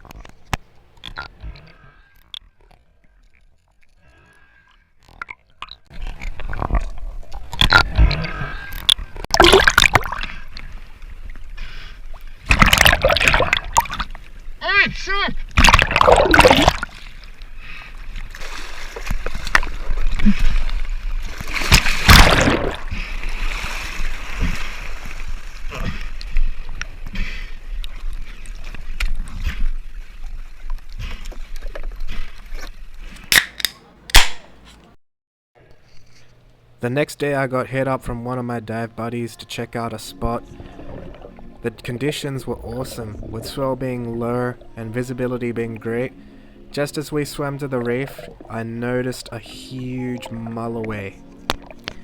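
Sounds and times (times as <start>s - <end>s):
water splashing and sloshing: 1.0s - 33.4s, 37.8s - 52.0s
low rumble: 40.4s - 45.5s.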